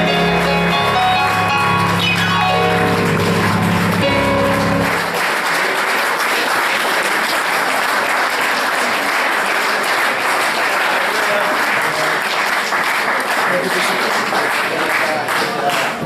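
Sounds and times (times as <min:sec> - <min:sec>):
music final chord: 0:00.0 - 0:05.2
audience applause: 0:00.0 - 0:16.0.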